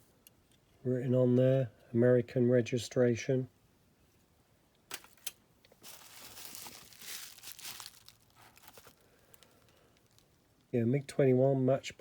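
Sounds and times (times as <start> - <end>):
wrapping material crinkling: 5.0 - 10.7.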